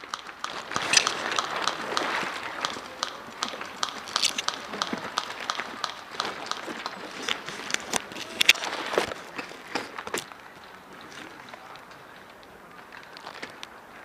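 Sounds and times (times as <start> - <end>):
sharp clicks and clatter: 0.0 - 10.3
running footsteps: 0.0 - 14.0.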